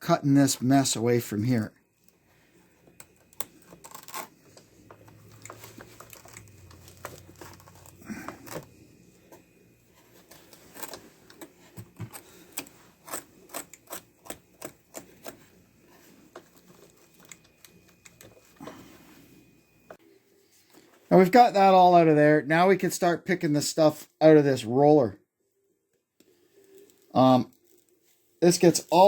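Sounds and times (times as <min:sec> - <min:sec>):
knife cutting and scraping hair: 0:03.4 - 0:04.6, 0:10.2 - 0:15.6.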